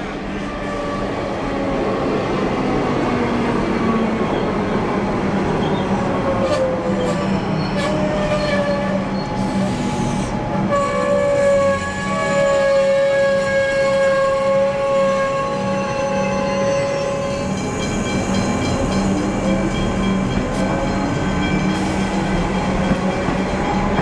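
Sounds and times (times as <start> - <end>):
electric train rumbling: 0.0 - 24.0.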